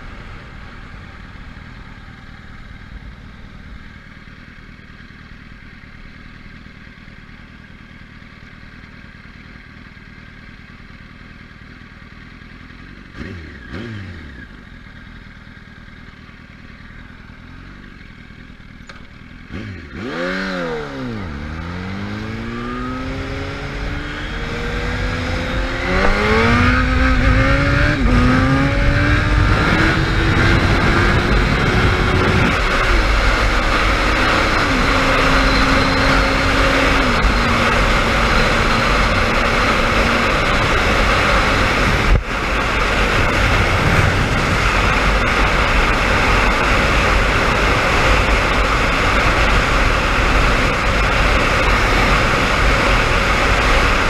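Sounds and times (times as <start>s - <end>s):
motorcycle engine revving: 0.0s - 54.0s
wind rushing over microphone: 23.2s - 54.0s.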